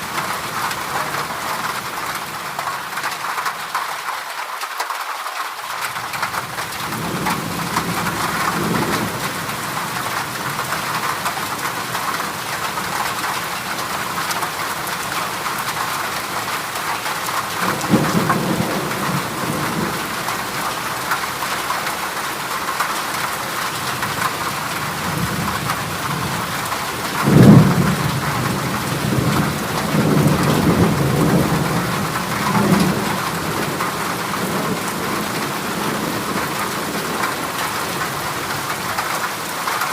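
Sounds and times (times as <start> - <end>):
heavy rain on a metal roof: 0.0 - 39.9
thunder rumbling: 17.4 - 21.4, 23.8 - 39.0.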